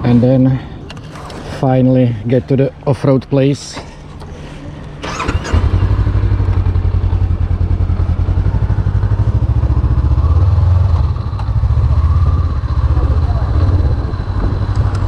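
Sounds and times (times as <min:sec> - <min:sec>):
motorcycle engine idling: 0:05.0 - 0:15.0.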